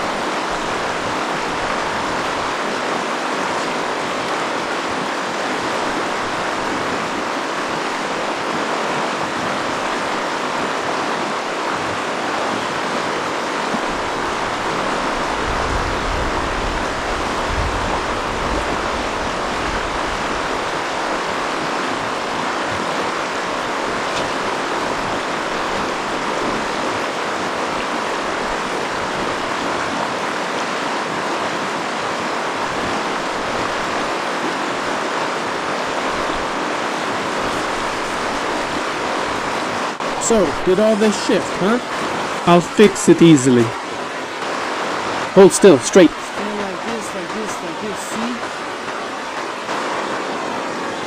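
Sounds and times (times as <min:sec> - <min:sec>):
low wind rumble on microphone: 0:00.0 - 0:40.7
river rapids rushing: 0:00.0 - 0:51.0.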